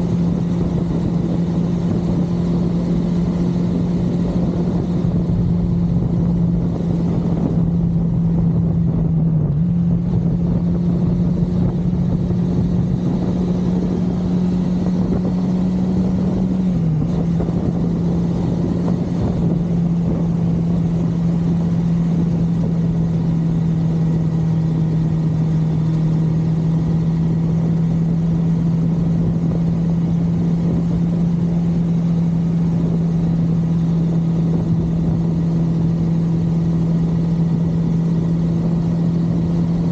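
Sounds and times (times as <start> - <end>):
motorcycle engine cruising: 0.0 - 39.9
wind and road rush: 0.0 - 39.9.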